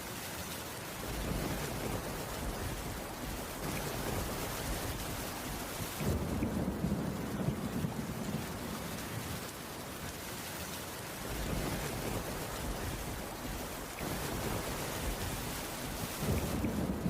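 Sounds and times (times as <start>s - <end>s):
heavy rain on a wooden roof: 0.0s - 17.0s.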